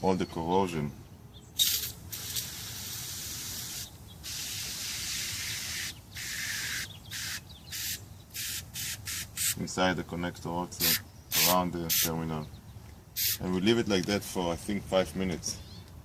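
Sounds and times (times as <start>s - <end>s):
aerosol spray hissing: 1.6s - 9.6s, 10.8s - 12.1s, 13.2s - 13.4s.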